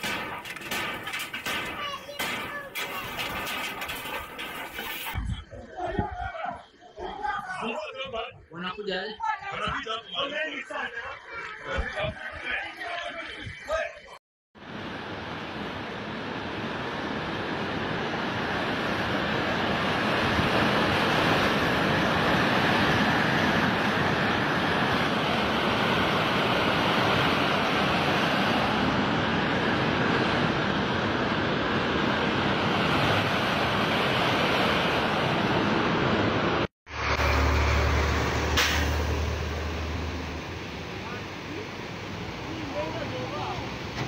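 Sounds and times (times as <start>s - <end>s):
floodwater rushing: 0.0s - 5.2s
river rushing with low rumble: 14.6s - 44.0s.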